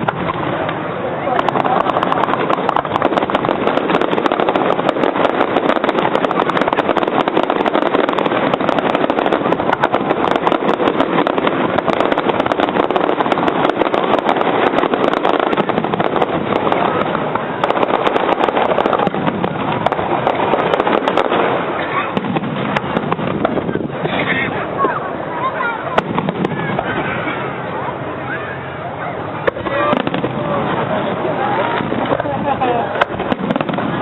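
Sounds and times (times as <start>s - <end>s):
fireworks crackling: 0.0s - 34.0s.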